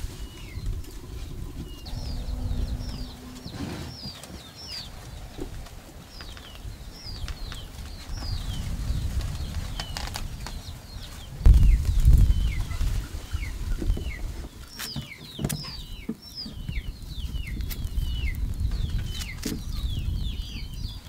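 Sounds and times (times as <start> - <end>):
birds chirping: 0.0 - 21.0
low rumble: 1.6 - 5.6.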